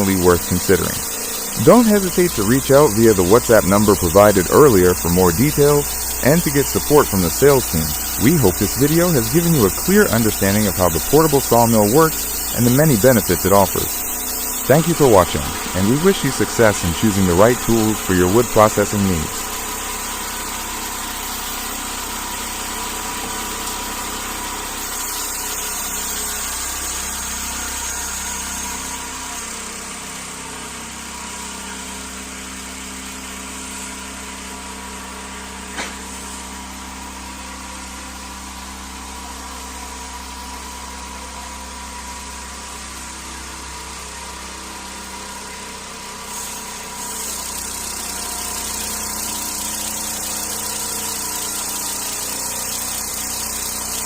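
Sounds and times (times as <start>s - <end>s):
engine running steadily: 0.0s - 22.3s.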